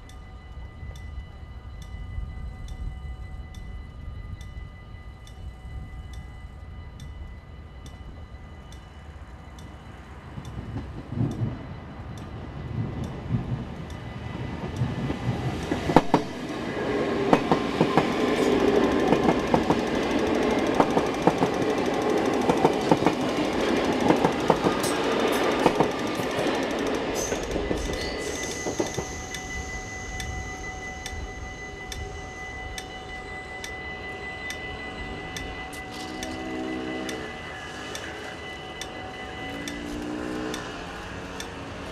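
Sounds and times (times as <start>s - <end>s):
electric train passing: 0.0s - 41.9s
level-crossing bell ringing: 0.0s - 41.9s
wheels clacking over rail joints: 13.0s - 29.4s.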